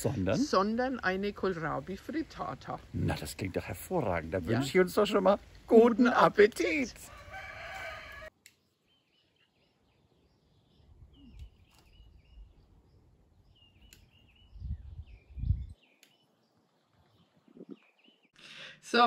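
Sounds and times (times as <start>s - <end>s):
faint birdsong chirps: 7.8s - 19.0s.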